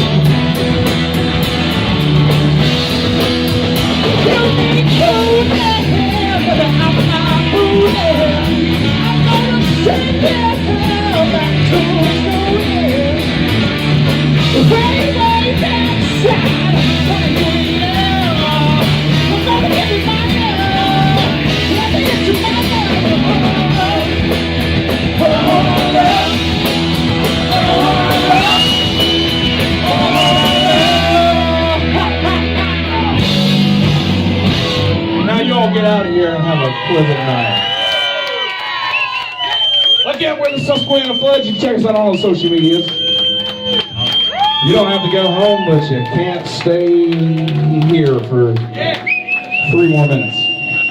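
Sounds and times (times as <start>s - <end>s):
electric guitar lead: 0.0s - 36.9s
bass and drums: 0.0s - 38.1s, 39.6s - 50.9s.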